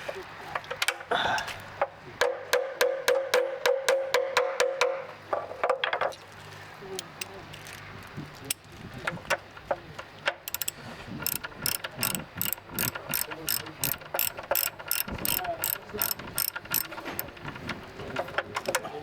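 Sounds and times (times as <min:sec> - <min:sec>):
tools knocking: 0:09.3 - 0:18.8
ratchet wrench clicking: 0:10.4 - 0:17.8.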